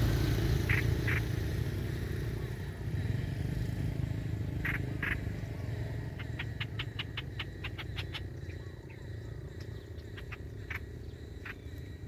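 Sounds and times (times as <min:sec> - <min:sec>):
bird chattering call: 0:00.2 - 0:01.7, 0:04.4 - 0:12.0.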